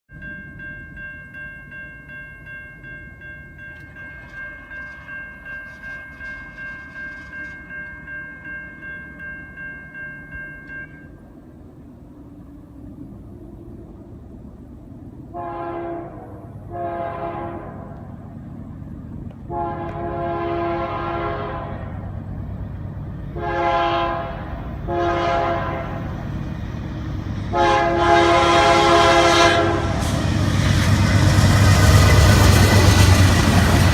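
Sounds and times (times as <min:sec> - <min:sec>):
railroad crossing bell ringing: 0:00.1 - 0:11.6
train rumbling: 0:00.1 - 0:33.9
locomotive air horn blasts: 0:15.3 - 0:18.3, 0:19.5 - 0:22.0, 0:23.3 - 0:26.2, 0:27.5 - 0:30.2.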